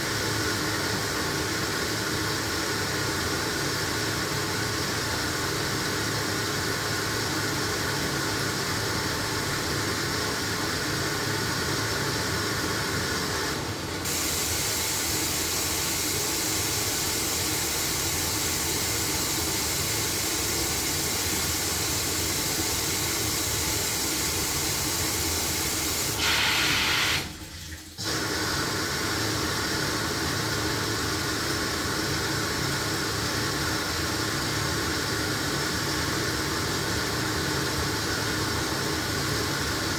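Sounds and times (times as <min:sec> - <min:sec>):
washing machine running: 0:00.0 - 0:39.9
water hissing in: 0:14.0 - 0:29.8.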